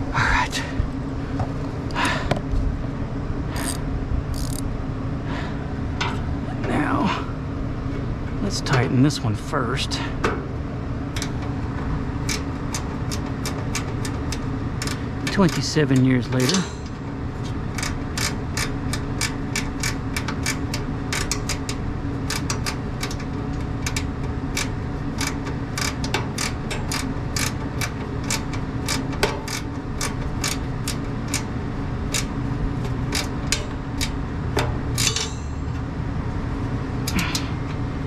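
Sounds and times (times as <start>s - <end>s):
low machinery hum: 0.0s - 38.0s
hand ratchet clicking: 3.6s - 4.6s, 12.2s - 17.0s, 17.7s - 31.5s, 32.1s - 35.5s.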